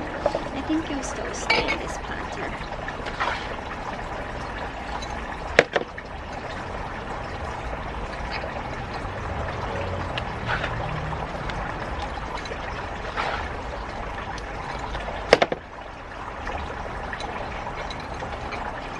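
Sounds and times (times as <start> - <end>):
water trickling: 0.0 - 18.9.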